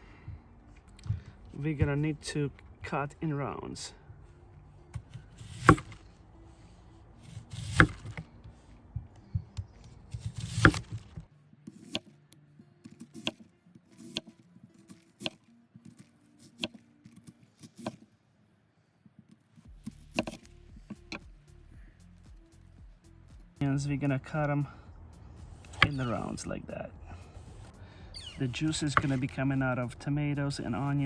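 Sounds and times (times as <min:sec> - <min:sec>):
knife slicing onion on board: 0:05.0 - 0:06.0, 0:07.2 - 0:08.2, 0:09.6 - 0:12.1, 0:12.9 - 0:14.3, 0:14.9 - 0:18.0, 0:19.8 - 0:21.2, 0:25.5 - 0:26.2, 0:28.4 - 0:29.3.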